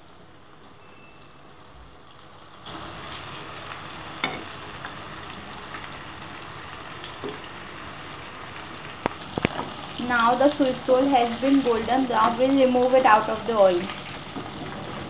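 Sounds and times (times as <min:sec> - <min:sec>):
food deep-frying in oil: 0:00.0 - 0:15.0.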